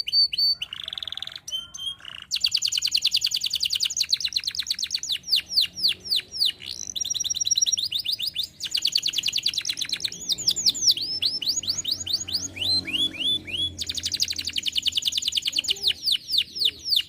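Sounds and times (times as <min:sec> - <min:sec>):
canary singing: 0:00.0 - 0:17.0.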